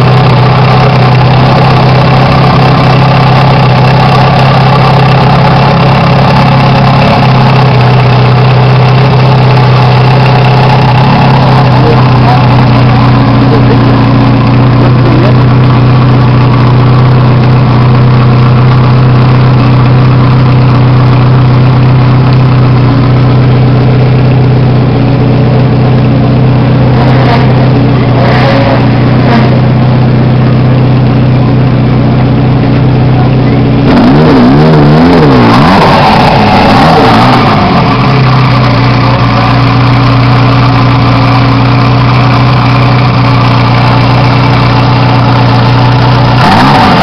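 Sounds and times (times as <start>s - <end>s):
car engine idling and revving: 0.0s - 47.0s.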